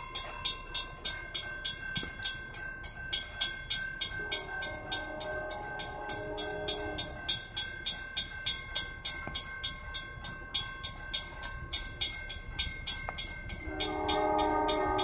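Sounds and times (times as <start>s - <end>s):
railroad crossing bell ringing: 0.0s - 15.0s
freight train rumbling past: 2.8s - 9.0s, 11.8s - 15.0s.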